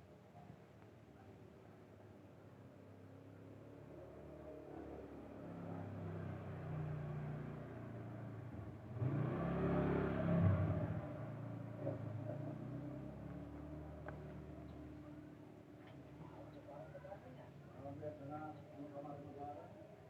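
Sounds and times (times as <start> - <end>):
vehicle engine passing by: 4.1 - 14.9.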